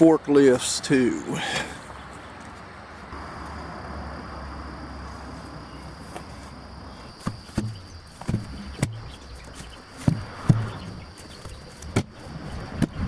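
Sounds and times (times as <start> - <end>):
high insect drone: 2.8 - 13.0
sharp knocks: 7.2 - 13.0.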